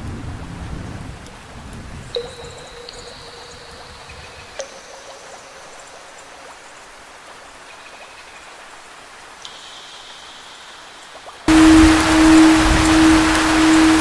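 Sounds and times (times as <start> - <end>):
steady rain: 0.0 - 14.0
struck instrument notes ringing: 11.5 - 14.0.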